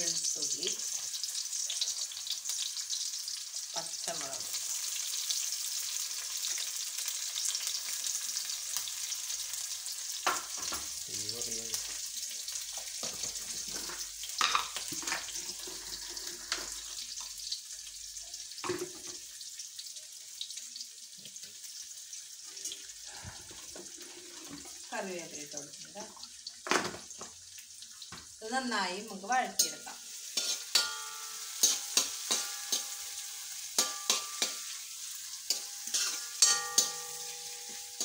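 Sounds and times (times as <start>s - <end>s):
food sizzling in hot oil: 0.0s - 38.0s
spoon knocking on pan: 33.8s - 34.7s, 35.5s - 38.0s.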